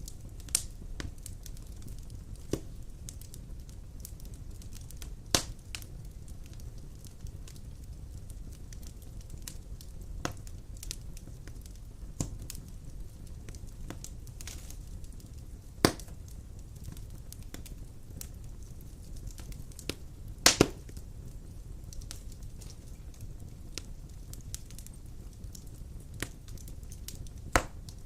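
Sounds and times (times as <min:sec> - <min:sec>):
fire crackling and popping: 0:00.0 - 0:28.0
fire rumbling: 0:00.0 - 0:28.0.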